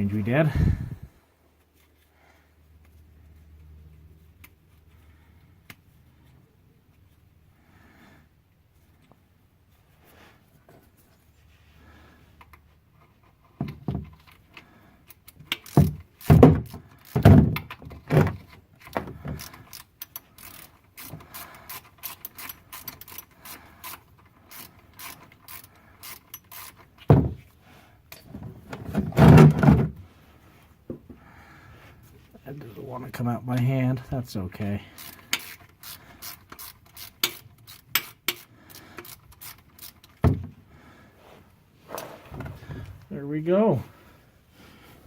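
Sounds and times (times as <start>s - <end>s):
ratchet wrench clicking: 15.1s - 17.2s, 19.4s - 26.9s, 35.0s - 40.2s.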